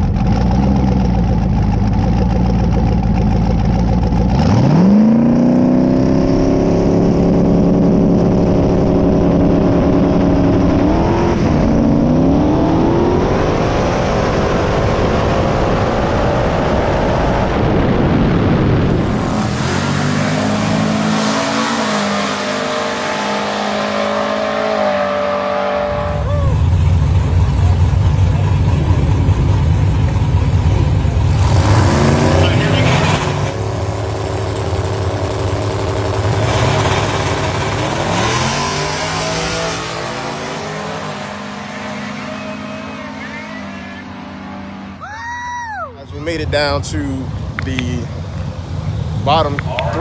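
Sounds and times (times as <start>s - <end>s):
low steady engine rumble: 0.0s - 22.7s, 26.0s - 31.6s, 46.0s - 50.0s
drag car engine at full throttle: 0.0s - 45.0s, 46.0s - 50.0s.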